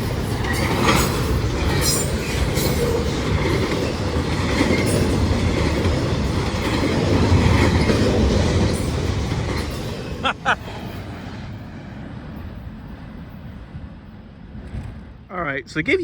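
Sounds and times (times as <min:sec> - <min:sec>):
wheels clicking over rail joints: 0:00.0 - 0:10.2
train wheels rumbling on tracks: 0:00.0 - 0:16.0.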